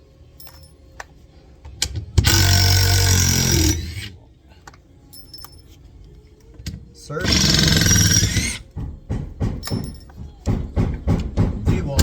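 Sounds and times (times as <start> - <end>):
impact driver running: 2.2 - 4.1, 7.2 - 8.7.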